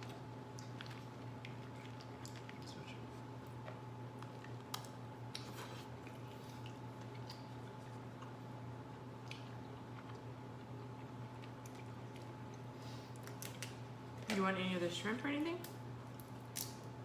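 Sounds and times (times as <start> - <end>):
faint chewing: 0.0 - 8.5, 9.2 - 13.8
steady low hum: 0.0 - 17.0.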